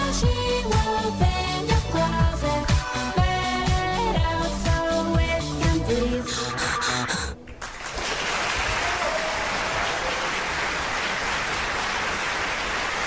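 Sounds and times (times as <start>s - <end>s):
song ending: 0.0s - 7.4s.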